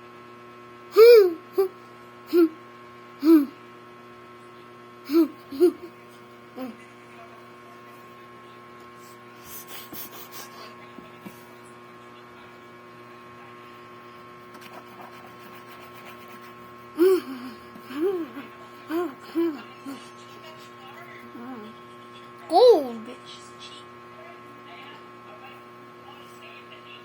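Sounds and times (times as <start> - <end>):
short voiced sounds: 1.0 - 1.7, 2.3 - 2.5, 3.2 - 3.5, 5.1 - 5.9, 22.5 - 23.0.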